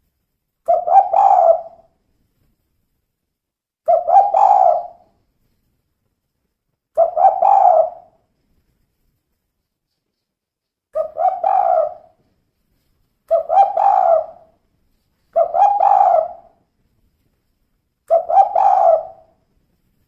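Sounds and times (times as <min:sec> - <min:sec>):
dove cooing: 0:00.7 - 0:01.9, 0:03.9 - 0:05.0, 0:07.0 - 0:08.2, 0:11.0 - 0:12.2, 0:13.3 - 0:14.6, 0:15.3 - 0:16.6, 0:18.1 - 0:19.4.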